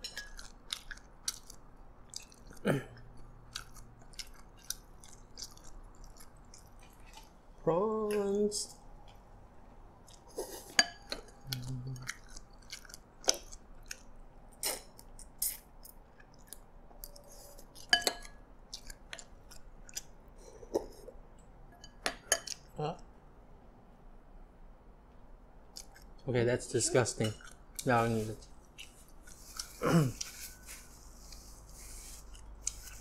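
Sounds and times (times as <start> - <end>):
chewing with wet mouth sounds: 0.0 - 20.7, 25.6 - 26.2
person humming: 11.4 - 12.1.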